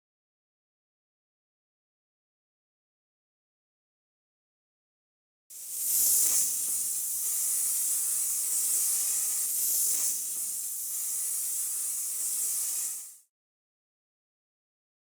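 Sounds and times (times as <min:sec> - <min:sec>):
spray paint hissing: 0:05.5 - 0:13.3.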